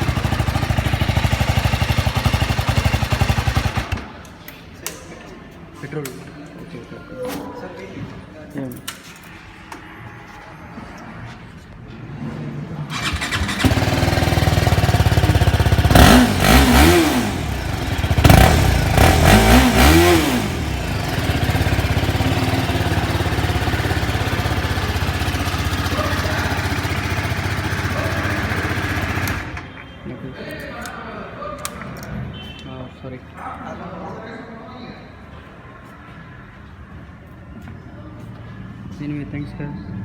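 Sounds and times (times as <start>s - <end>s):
engine revving: 0.0s - 4.0s, 12.9s - 29.7s
motorcycle engine starting and idling: 0.0s - 4.4s, 12.9s - 29.8s.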